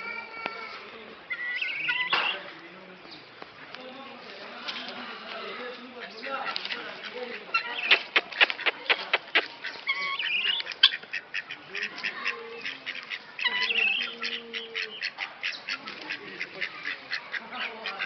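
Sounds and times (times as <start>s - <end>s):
birds calling rapidly: 1.2s - 3.7s, 5.4s - 18.0s
wavering bird calls: 1.3s - 2.5s, 6.0s - 18.0s.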